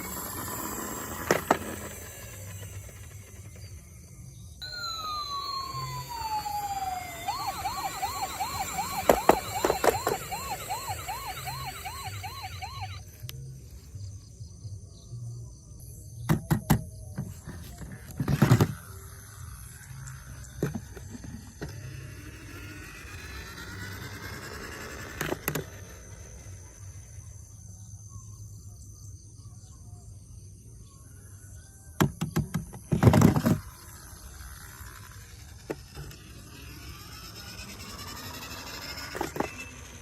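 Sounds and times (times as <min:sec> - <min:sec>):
toy electronic siren: 0:00.0 - 0:03.9, 0:04.6 - 0:14.0, 0:17.2 - 0:27.5, 0:32.9 - 0:40.0.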